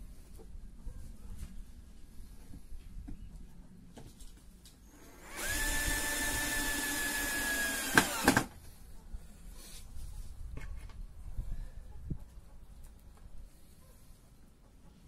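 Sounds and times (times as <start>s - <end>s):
power drill running: 4.9s - 8.5s.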